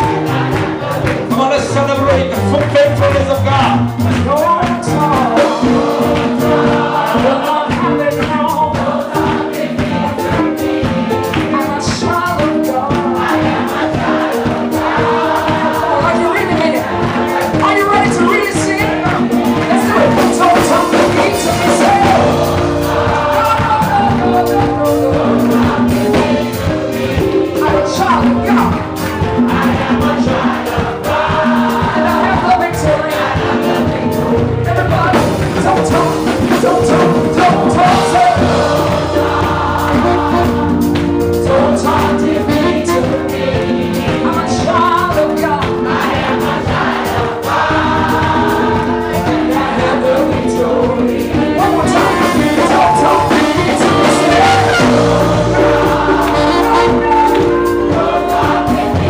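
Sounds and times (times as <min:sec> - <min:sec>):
choir and congregation singing: 0:00.0 - 0:59.0
live band bass and drums: 0:00.0 - 0:59.0.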